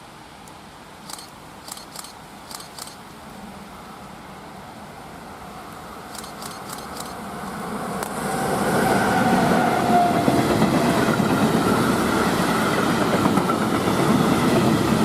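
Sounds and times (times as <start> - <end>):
steady hiss: 0.0 - 8.7
sharp ticks: 1.0 - 3.0, 6.1 - 7.2
train rumble: 6.1 - 15.0.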